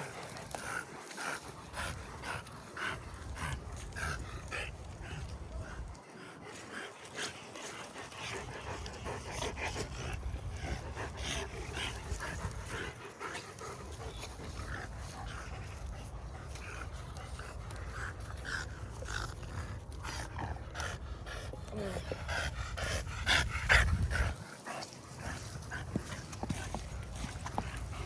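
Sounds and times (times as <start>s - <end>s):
dog panting: 0.0s - 28.0s.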